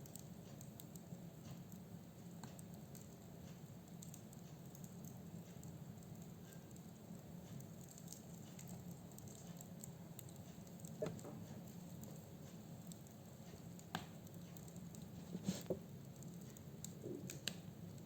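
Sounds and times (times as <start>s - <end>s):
firewood crackling and popping: 0.0s - 18.0s.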